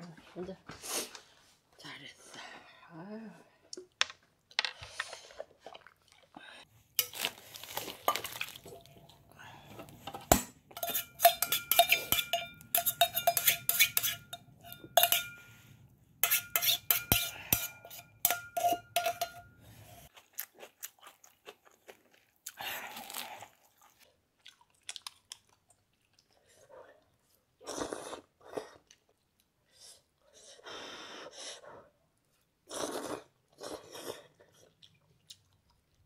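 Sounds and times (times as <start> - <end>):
metal utensil scraping a metal pot: 7.0 - 9.0, 9.8 - 20.1
metal bowl ringing: 10.8 - 15.6, 16.3 - 19.7.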